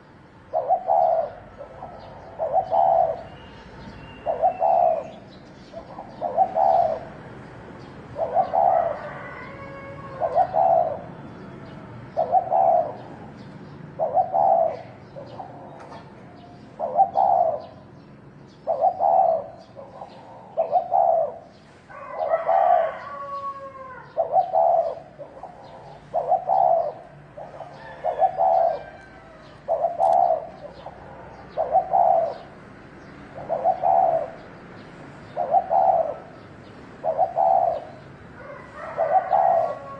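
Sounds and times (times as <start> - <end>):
dove cooing: 0.0 - 17.9, 18.5 - 32.6, 33.3 - 39.9
other birds chirping: 0.0 - 39.9.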